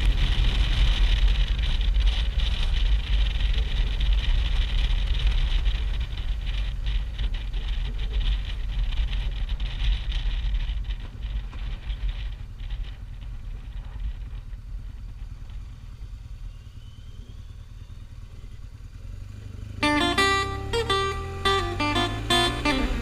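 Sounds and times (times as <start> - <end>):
motorcycle engine and road noise: 0.0 - 10.9.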